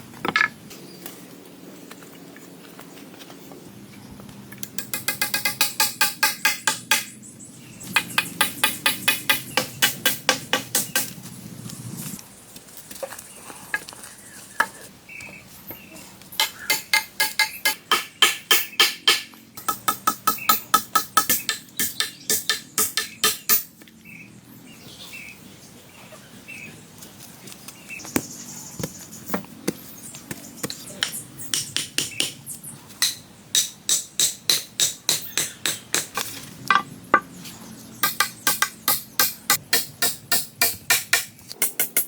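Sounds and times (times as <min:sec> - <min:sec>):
rapid hammering: 0:04.8 - 0:07.1, 0:08.0 - 0:11.2, 0:16.4 - 0:23.7, 0:29.6 - 0:32.4, 0:33.0 - 0:36.8, 0:38.0 - 0:42.0.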